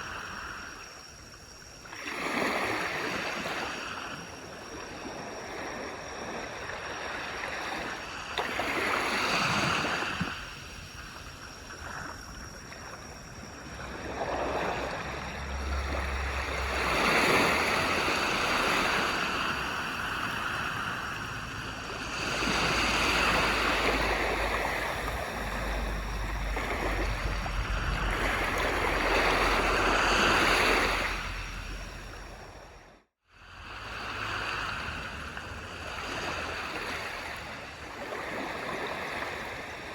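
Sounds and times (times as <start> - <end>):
sea waves washing onto beach: 12.6 - 32.6.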